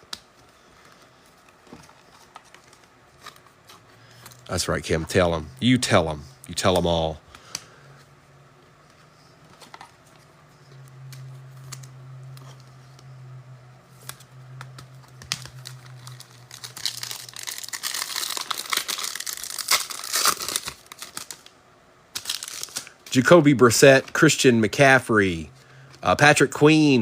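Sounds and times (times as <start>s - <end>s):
low steady hum: 0.0s - 27.0s
foil wrapper tearing and crinkling: 15.0s - 21.5s, 22.1s - 23.3s.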